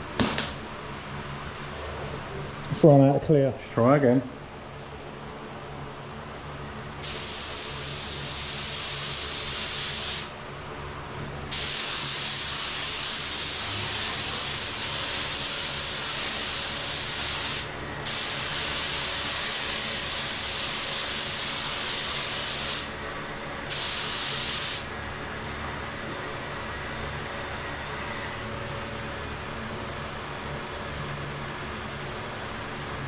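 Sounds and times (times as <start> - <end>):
paint sprayer hissing: 7.0 - 10.4, 11.5 - 23.0, 23.7 - 24.9.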